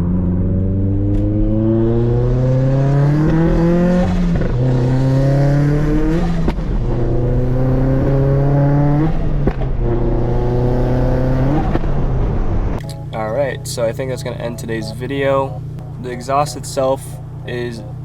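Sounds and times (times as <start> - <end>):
car engine accelerating through gears: 0.0 - 12.8.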